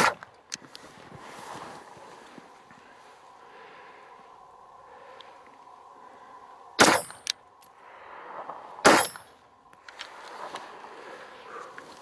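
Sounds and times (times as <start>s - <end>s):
pistol shots: 6.8s - 7.3s, 8.8s - 9.3s.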